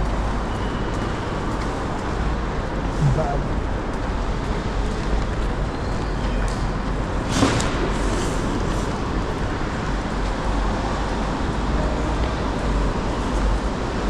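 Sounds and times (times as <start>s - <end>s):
ambient rumble: 2.8s - 4.3s.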